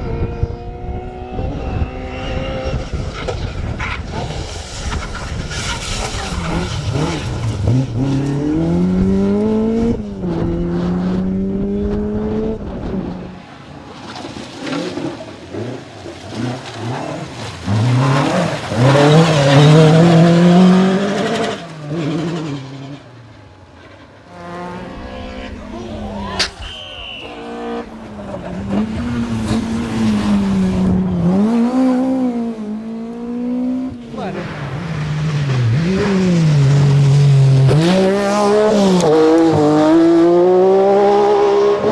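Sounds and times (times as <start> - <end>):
rally car engine accelerating: 0.0 - 41.9
steady rushing noise: 24.4 - 30.5.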